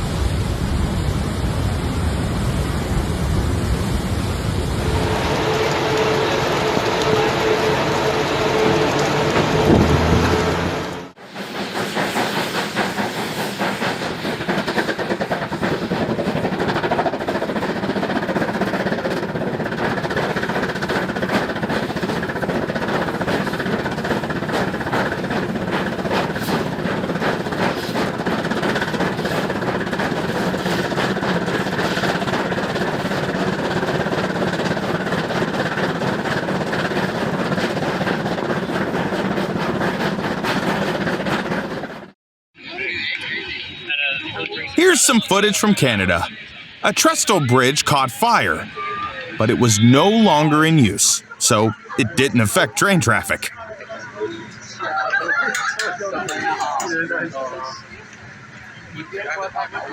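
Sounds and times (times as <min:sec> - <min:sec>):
train rattling on track: 0:04.8 - 0:42.1.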